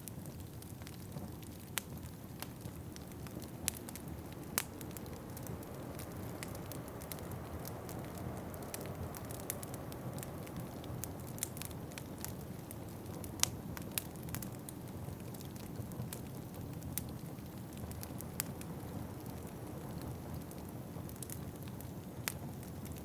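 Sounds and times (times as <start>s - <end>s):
wood fire crackling: 0.0s - 23.0s
steady low rumble: 2.0s - 15.2s.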